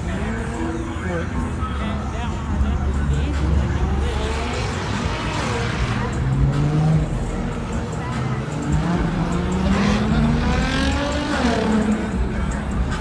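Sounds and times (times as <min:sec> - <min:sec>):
people talking: 0:00.0 - 0:13.0
car engine revving: 0:01.4 - 0:13.0.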